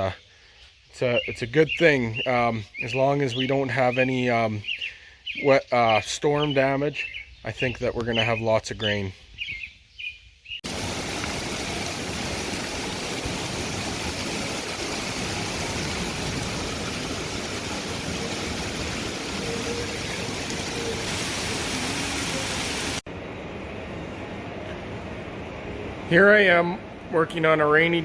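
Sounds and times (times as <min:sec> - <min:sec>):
heavy rain downpour: 0:10.6 - 0:23.0.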